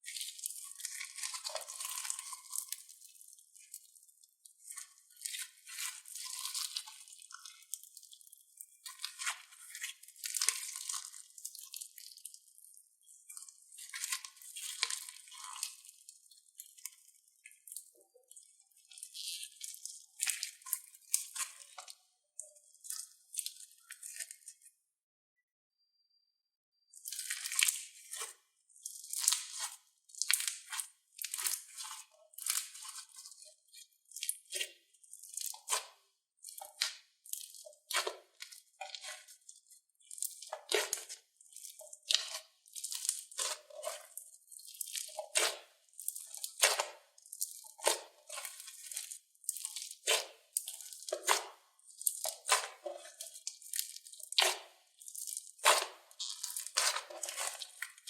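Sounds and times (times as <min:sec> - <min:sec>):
slime squeezed crackling: 0:28.8 - 0:58.0.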